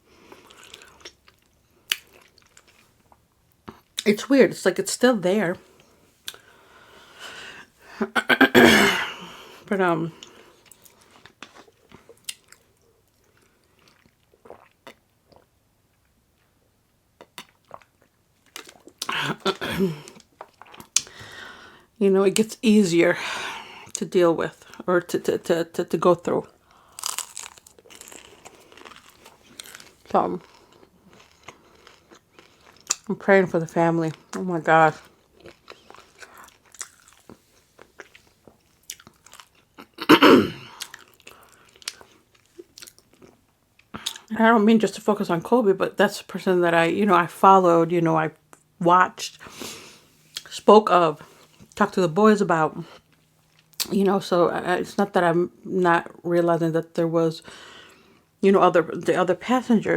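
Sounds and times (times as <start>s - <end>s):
chewing crunchy food: 0.3s - 4.1s, 10.2s - 16.6s, 17.2s - 19.1s, 20.1s - 21.2s, 26.5s - 33.1s, 35.0s - 40.0s, 40.7s - 44.3s
loud crunching bite: 26.9s - 30.0s
chewing clicks and crackles: 35.3s - 40.0s.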